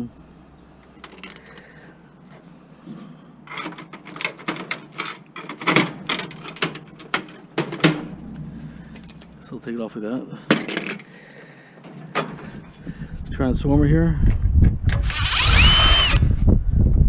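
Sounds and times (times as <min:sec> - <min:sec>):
metallic clatter of parts: 0:01.0 - 0:01.7, 0:03.5 - 0:09.4, 0:10.4 - 0:11.2, 0:11.8 - 0:12.8
sharp clicks and knocks: 0:03.5 - 0:08.2.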